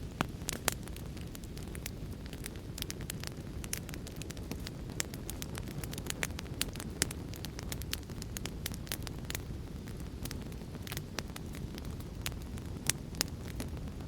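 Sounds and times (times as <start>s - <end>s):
low rumble of flames: 0.0s - 14.0s
wood fire crackling: 0.0s - 14.0s.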